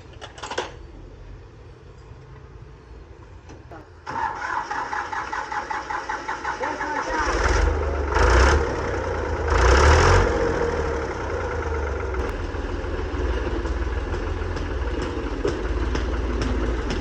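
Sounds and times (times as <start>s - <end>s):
tractor engine idling: 4.0s - 17.0s.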